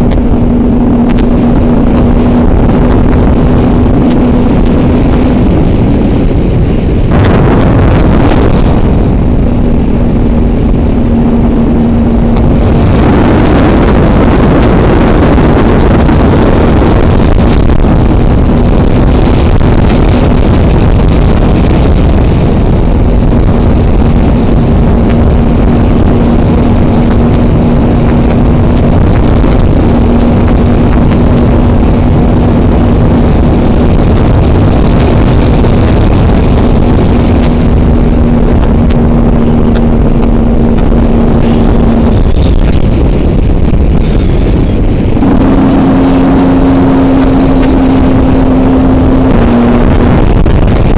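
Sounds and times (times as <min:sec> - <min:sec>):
motorcycle engine running: 0:00.0 - 0:50.9
wind noise: 0:00.0 - 0:50.9.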